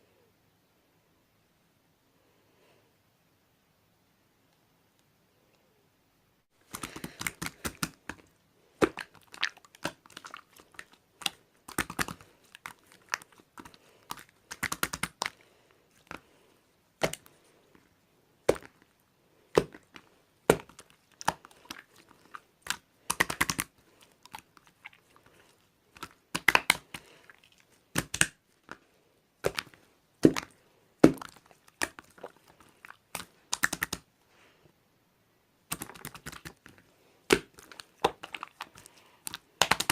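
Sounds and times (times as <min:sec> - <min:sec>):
slime squished by hand: 0:06.6 - 0:16.3, 0:18.4 - 0:18.9, 0:19.5 - 0:28.8, 0:29.4 - 0:34.1, 0:35.7 - 0:39.9
air bubbles crackling and popping: 0:08.8 - 0:15.4, 0:19.6 - 0:25.3, 0:25.9 - 0:28.3, 0:29.4 - 0:34.0, 0:35.7 - 0:39.9.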